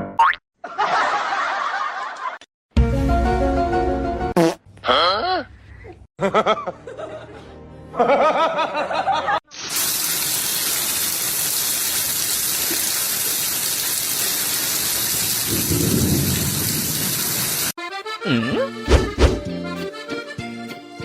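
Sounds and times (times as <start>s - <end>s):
heavy rain: 9.7s - 17.7s.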